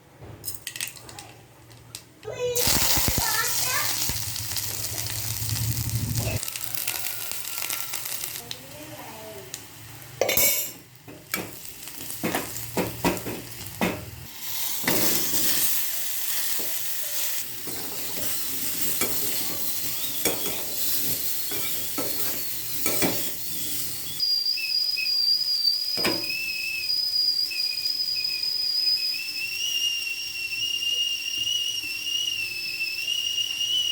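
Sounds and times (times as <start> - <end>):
food sizzling in a pan: 2.4 - 33.9
high whistling tone: 16.6 - 33.9.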